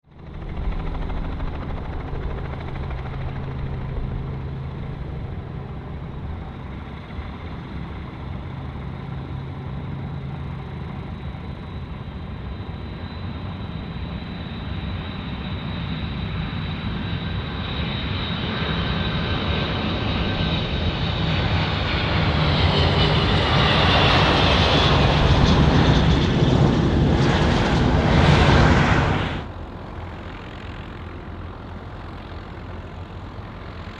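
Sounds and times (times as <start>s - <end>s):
jet engines droning and whining: 0.0s - 33.9s.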